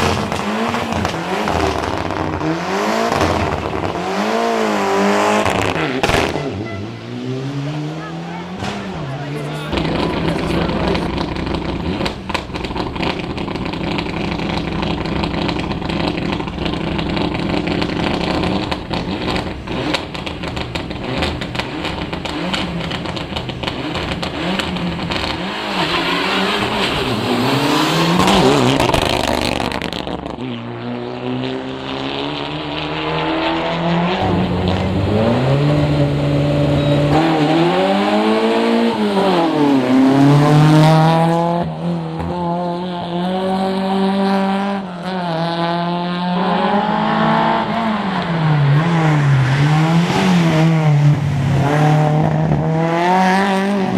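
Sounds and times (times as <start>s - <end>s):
rally car engine revving: 0.0s - 53.9s.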